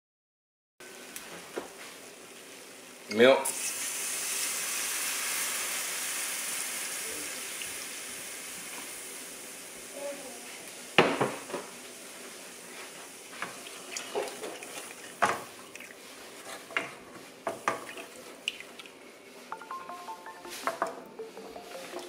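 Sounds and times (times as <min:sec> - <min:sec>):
wooden spoon scraping a pan: 0:12.7 - 0:18.8
music: 0:19.5 - 0:22.0.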